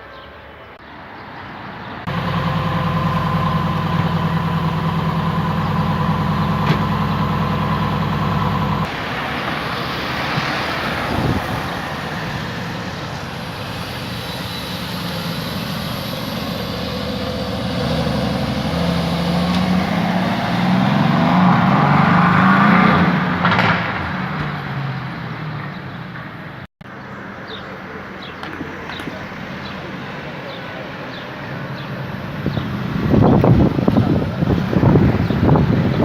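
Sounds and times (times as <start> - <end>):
car engine running: 2.1 - 8.9.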